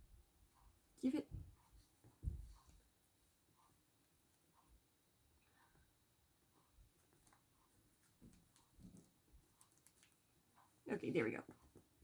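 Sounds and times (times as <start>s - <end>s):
faint light clicks and rustles: 6.5s - 12.0s.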